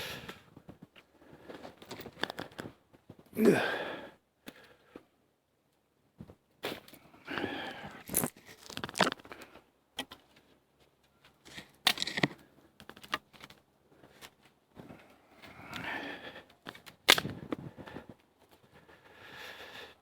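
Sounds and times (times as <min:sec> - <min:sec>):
sticks rustling and scraping: 0:06.6 - 0:19.0
twigs snapping: 0:08.1 - 0:09.4, 0:11.5 - 0:13.6, 0:16.6 - 0:17.4.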